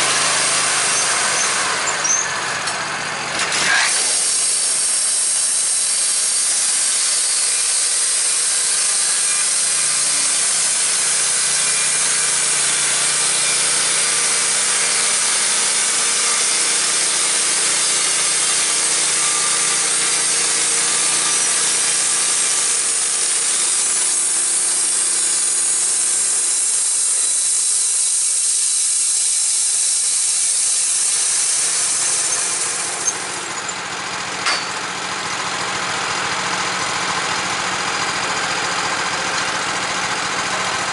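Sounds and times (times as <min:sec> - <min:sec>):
engine droning: 0:00.0 - 0:04.1, 0:30.4 - 0:40.9
band saw cutting log: 0:00.0 - 0:40.9.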